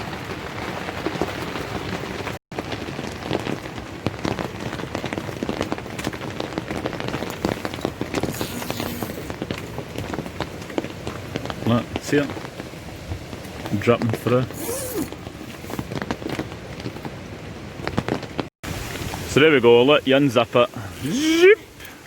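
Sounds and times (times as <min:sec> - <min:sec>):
rain drops hitting tent fabric: 0:00.0 - 0:22.0.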